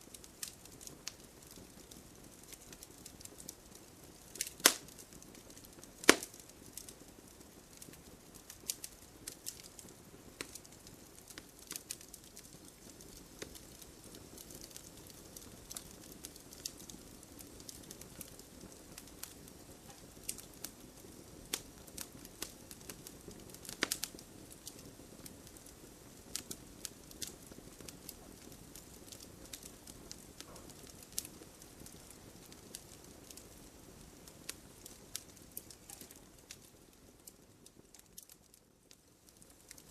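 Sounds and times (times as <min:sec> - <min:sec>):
campfire crackling and popping: 0:00.0 - 0:39.9
hiss of burning: 0:00.0 - 0:39.9.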